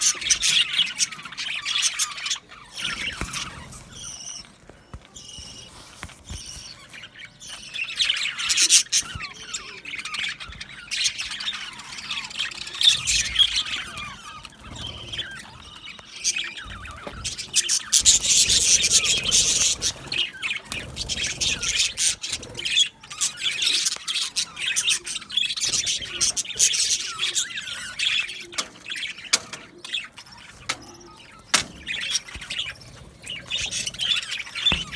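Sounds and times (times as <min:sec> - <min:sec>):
budgerigars chattering: 0:00.0 - 0:34.9.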